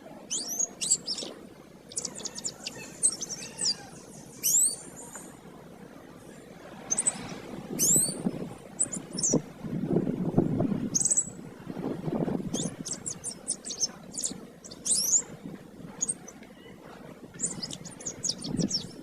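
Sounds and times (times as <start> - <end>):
canary singing: 0.3 - 5.3, 6.9 - 8.2, 8.8 - 9.4, 10.9 - 11.4, 12.5 - 15.3, 15.9 - 16.8, 17.4 - 19.0.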